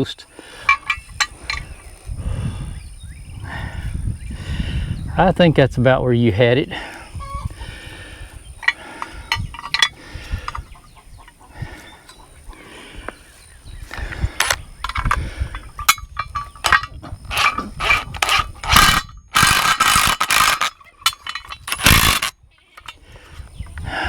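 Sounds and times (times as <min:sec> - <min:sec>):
ratchet wrench clicking: 0:08.6 - 0:09.9, 0:14.4 - 0:15.2, 0:15.8 - 0:23.0.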